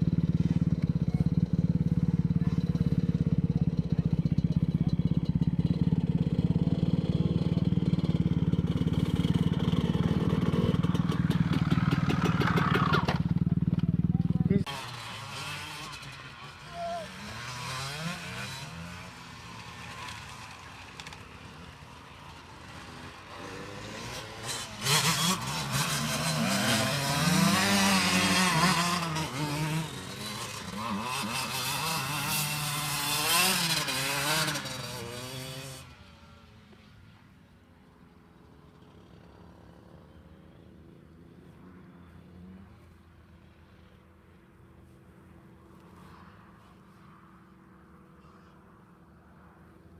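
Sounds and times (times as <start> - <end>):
motocross bike engines revving: 0.0 - 36.6
faint distant engine hum: 34.5 - 49.9.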